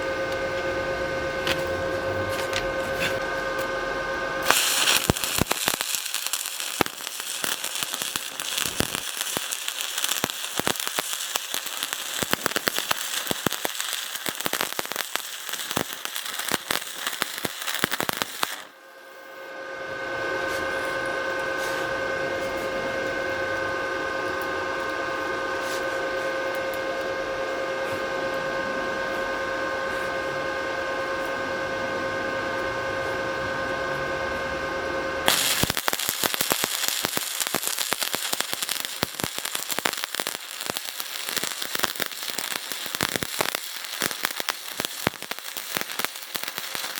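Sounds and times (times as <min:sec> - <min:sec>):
steady hum with high tones: 0:00.0 - 0:46.9
arc welding crackling: 0:04.4 - 0:19.1, 0:35.2 - 0:46.9.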